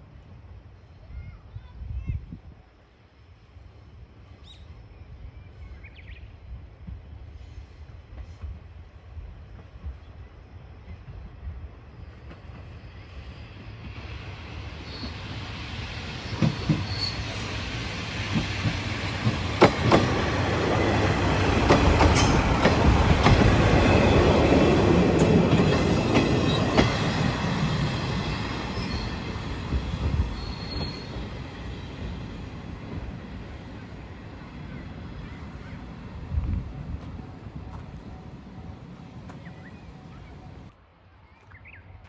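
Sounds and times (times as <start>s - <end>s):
diesel train passing: 2.8s - 42.0s
wheels clacking over rail joints: 16.3s - 17.2s, 18.2s - 31.6s
faint wheel squeals: 30.3s - 31.2s.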